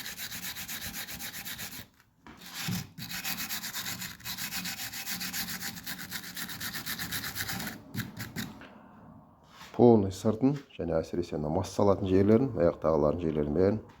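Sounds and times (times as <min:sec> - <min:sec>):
wire brush scrubbing metal: 0:00.0 - 0:08.6.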